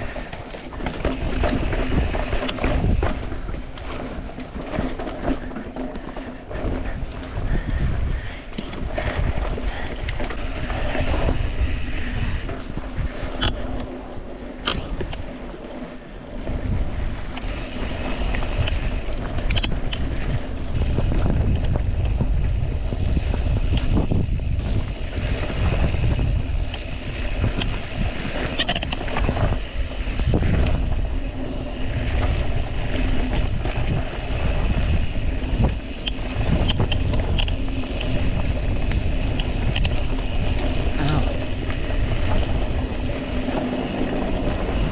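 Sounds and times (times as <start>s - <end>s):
bike clicks and rattles: 0.0s - 44.9s
wind buffeting microphone: 0.0s - 44.9s
tyres rolling over rocks: 3.6s - 6.6s.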